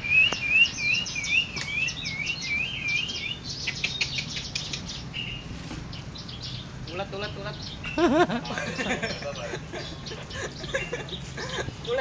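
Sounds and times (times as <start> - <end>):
bird sharp chirps: 0.0 - 8.1.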